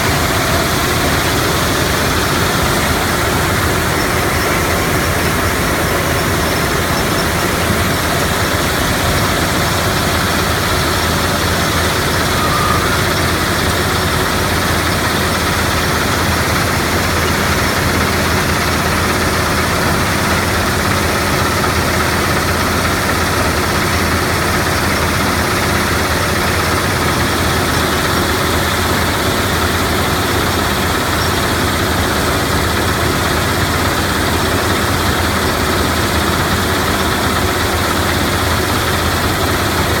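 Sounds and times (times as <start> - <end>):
crushing plant mechanical drone: 0.0 - 20.9.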